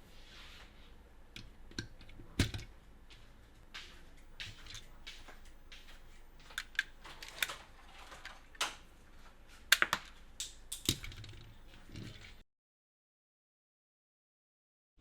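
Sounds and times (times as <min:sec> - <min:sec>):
plastic toys clicking and tapping: 0:01.3 - 0:02.7, 0:04.3 - 0:08.9, 0:09.7 - 0:12.4
packaging rustling: 0:04.4 - 0:08.8.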